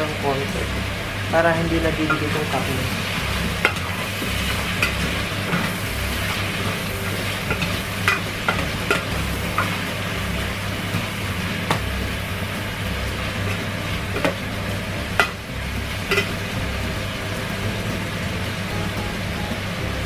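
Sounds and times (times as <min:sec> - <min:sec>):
chicken sizzling in pot: 0:00.0 - 0:20.0.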